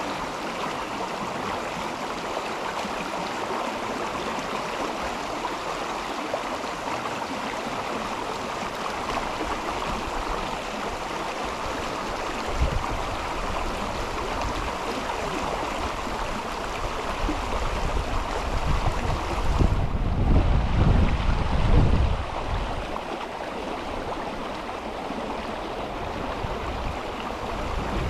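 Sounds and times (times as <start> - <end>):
river water rushing: 0.0 - 28.0
wind buffeting microphone: 11.6 - 14.8, 15.8 - 24.4, 25.1 - 28.0.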